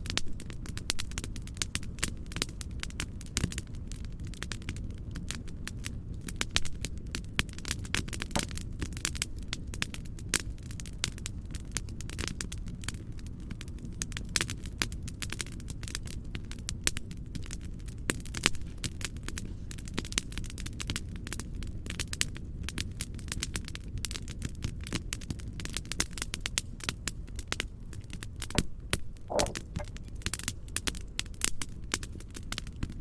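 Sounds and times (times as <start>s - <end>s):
wood fire crackling: 0.0s - 33.0s
low rumbling noise: 28.6s - 30.0s.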